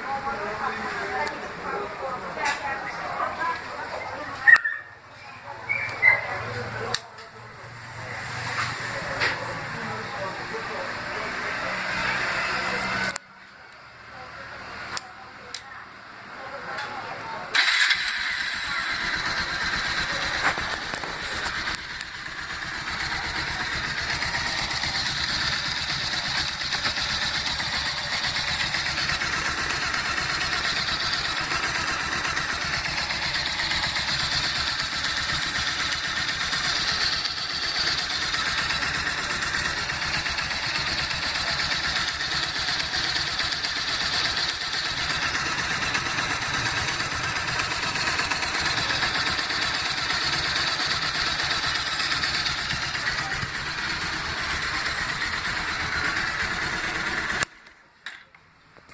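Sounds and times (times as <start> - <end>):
motorcycle engine idling: 0.0 - 15.6, 16.3 - 58.3
engine knocking: 17.6 - 57.6.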